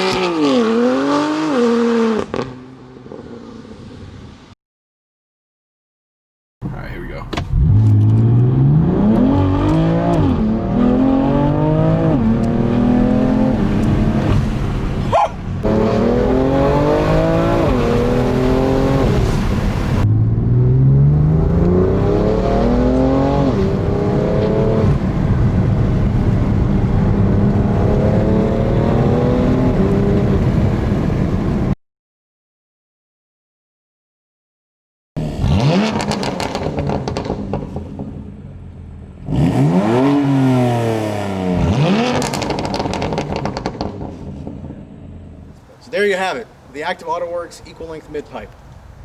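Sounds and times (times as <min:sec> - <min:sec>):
car engine accelerating through gears: 0:07.3 - 0:31.8, 0:35.2 - 0:38.4, 0:39.2 - 0:45.5.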